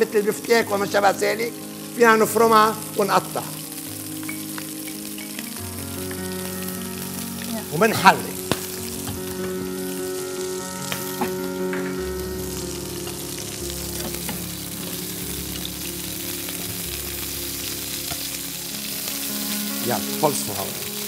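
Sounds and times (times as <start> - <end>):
chicken frying in oil sizzling: 0.0 - 21.0.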